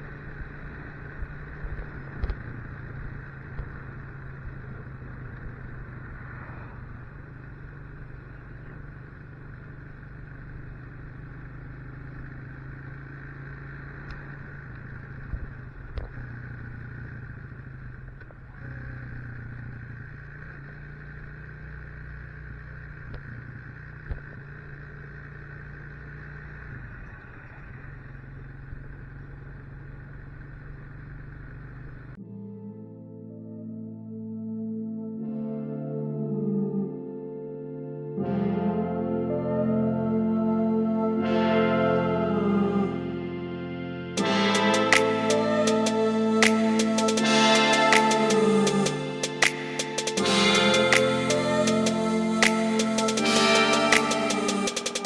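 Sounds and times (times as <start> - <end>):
motorcycle engine running: 0.0 - 32.2, 44.2 - 55.0.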